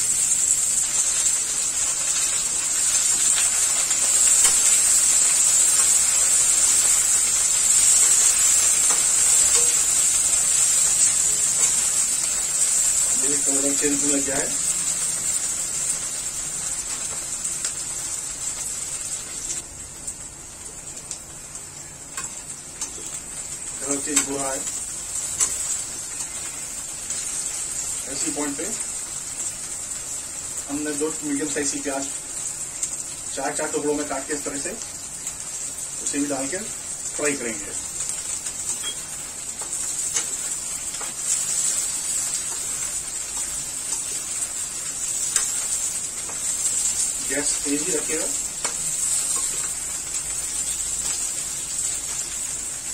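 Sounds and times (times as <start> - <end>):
okra deep-frying in oil: 0.0 - 52.9.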